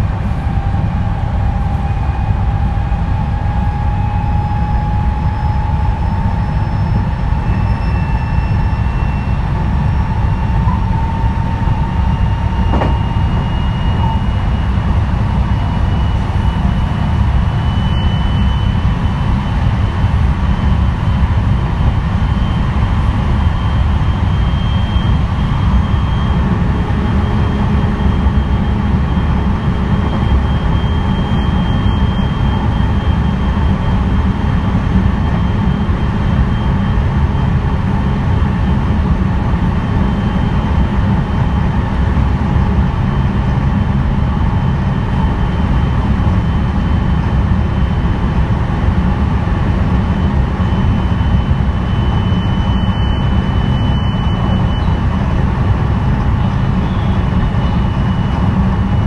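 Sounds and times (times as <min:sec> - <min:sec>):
train wheels rumbling: 0:00.0 - 0:59.0
faint high tone: 0:10.6 - 0:14.7.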